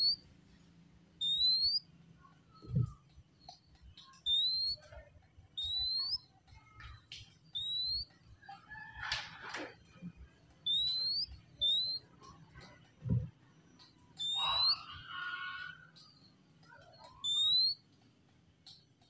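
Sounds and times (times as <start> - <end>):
bird whistling song: 0.0 - 0.2, 1.2 - 1.9, 2.6 - 8.6, 10.6 - 12.8, 13.5 - 17.9
bird chips and scratchy notes: 13.5 - 17.9.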